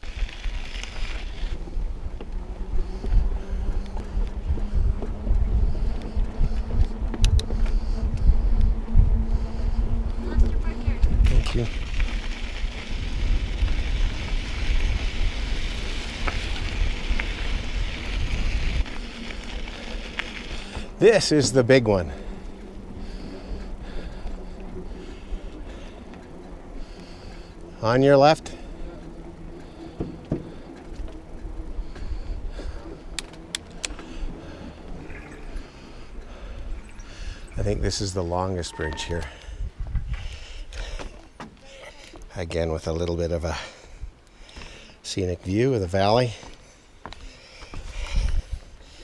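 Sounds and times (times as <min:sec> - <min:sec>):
wind buffeting microphone: 0:00.0 - 0:41.6, 0:42.2 - 0:49.0
bike tyres rolling on trail: 0:00.0 - 0:49.0
faint ticks: 0:02.1 - 0:04.4, 0:05.0 - 0:08.8, 0:28.4 - 0:37.6.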